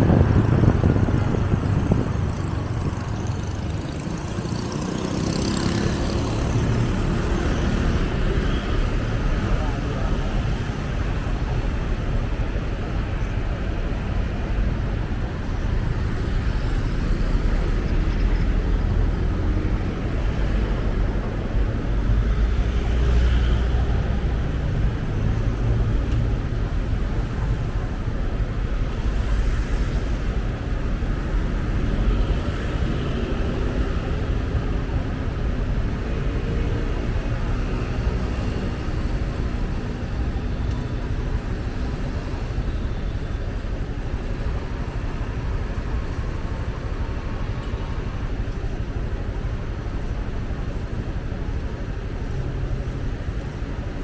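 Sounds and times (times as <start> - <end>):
motorcycle engine rumble: 0.0 - 14.0
surrounding traffic: 0.0 - 54.0
wind: 0.0 - 54.0.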